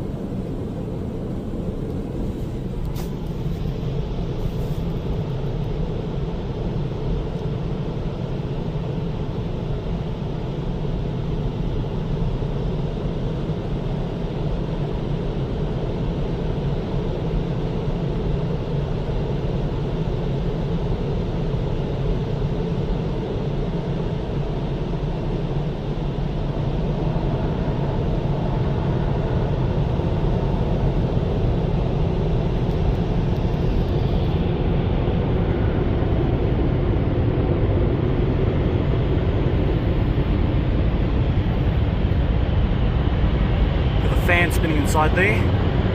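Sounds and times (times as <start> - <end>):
car wash dryer blowers: 0.0 - 5.2, 44.0 - 45.7.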